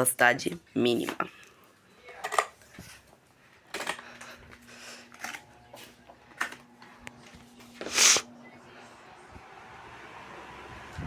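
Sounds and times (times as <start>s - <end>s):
faint low fan motor hum: 3.4s - 11.0s.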